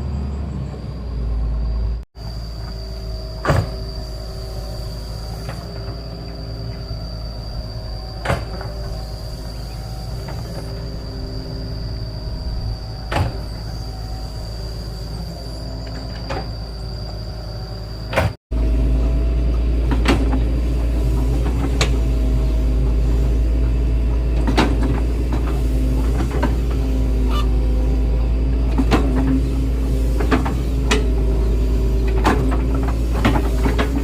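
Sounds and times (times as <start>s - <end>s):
excavator diesel engine running: 0.0s - 34.0s
sharp knocks and clanks: 24.4s - 26.8s, 32.1s - 34.0s.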